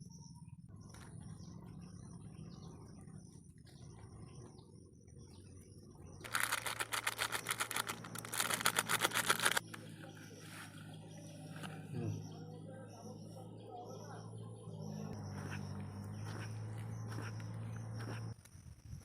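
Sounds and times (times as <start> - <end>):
rapid sharp clicks: 6.2 - 9.8.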